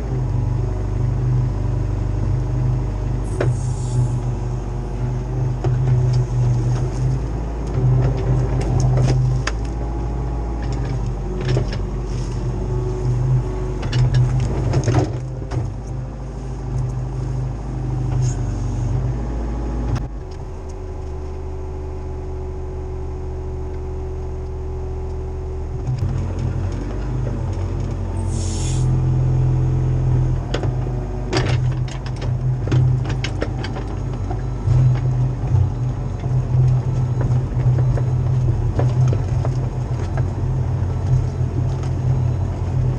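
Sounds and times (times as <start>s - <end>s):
excavator diesel engine running: 0.0s - 42.9s
short hiss: 28.3s - 28.9s.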